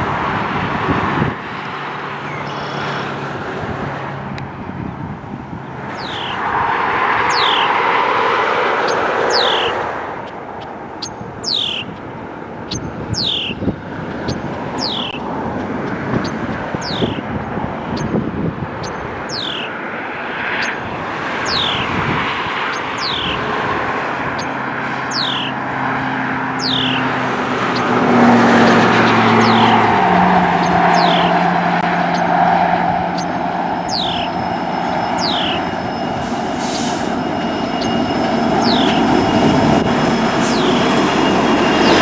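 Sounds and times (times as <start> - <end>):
low engine drone: 0.0 - 42.0
bird high falling call: 6.0 - 6.4, 7.3 - 7.8, 8.8 - 9.8, 11.0 - 12.0, 12.7 - 13.6, 14.3 - 15.2, 19.3 - 19.7, 25.1 - 25.6, 26.6 - 27.1, 28.6 - 29.9, 30.6 - 31.4, 33.9 - 34.4, 35.1 - 35.8.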